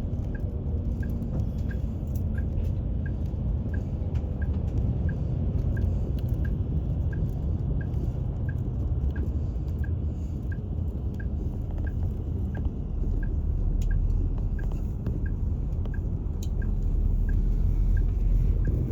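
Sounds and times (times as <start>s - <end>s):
low rumble: 0.0s - 18.9s.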